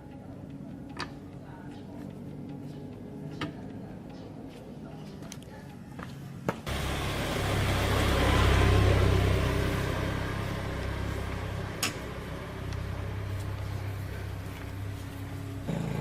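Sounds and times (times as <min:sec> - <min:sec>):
engine running: 0:06.7 - 0:16.0.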